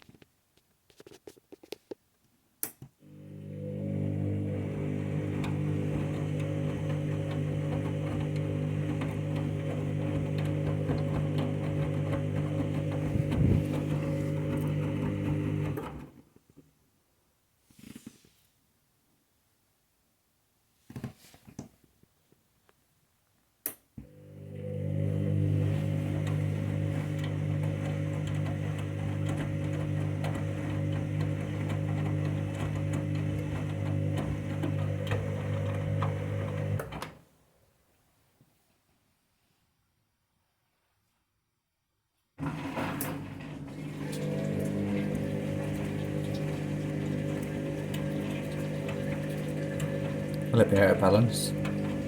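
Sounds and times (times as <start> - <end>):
drain pump humming: 3.0 - 16.0, 24.1 - 37.1, 42.4 - 52.0.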